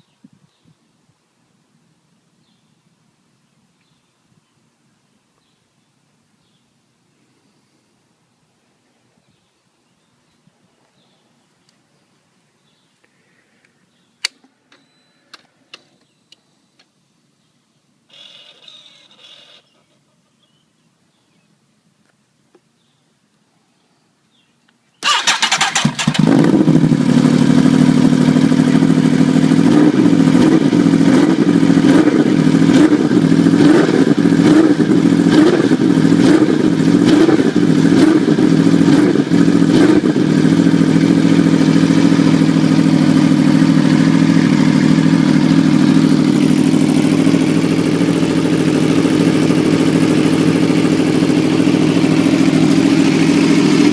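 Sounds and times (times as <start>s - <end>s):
motorcycle engine idling: 25.0s - 53.9s.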